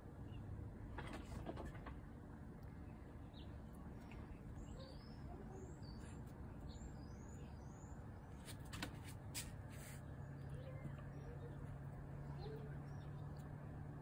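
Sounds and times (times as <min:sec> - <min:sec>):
low steady rumble: 0:00.0 - 0:08.4, 0:09.2 - 0:14.0
small bird chirping: 0:02.9 - 0:08.5, 0:10.0 - 0:13.7.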